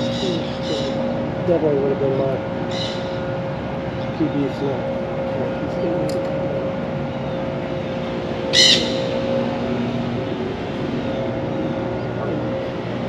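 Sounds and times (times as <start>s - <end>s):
bird squawk: 0.0s - 1.2s, 2.7s - 3.2s, 8.5s - 9.3s
steady low hum: 0.0s - 13.0s.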